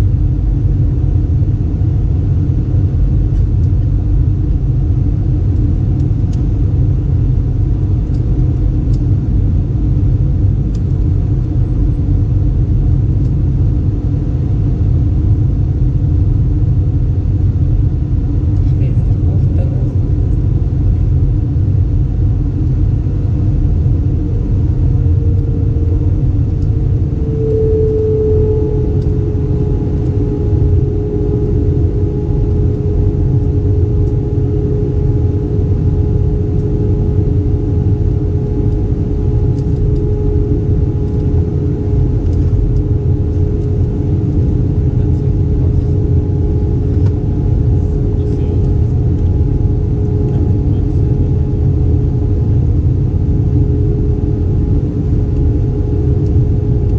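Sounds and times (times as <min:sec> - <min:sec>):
airplane cabin engine rumble: 0:00.0 - 0:56.9
steady hum tone: 0:00.0 - 0:56.9.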